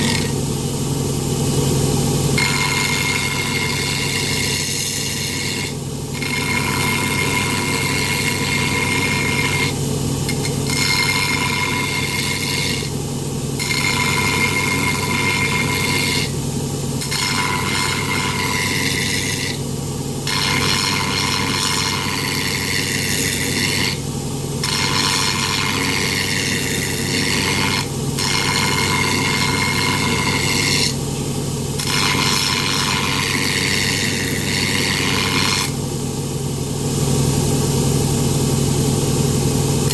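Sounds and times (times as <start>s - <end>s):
grinding on metal: 0.0s - 0.4s, 2.4s - 13.0s, 13.6s - 16.4s, 17.0s - 19.6s, 20.2s - 24.0s, 24.6s - 31.0s, 31.8s - 35.8s
grinder motor hum: 0.0s - 39.9s.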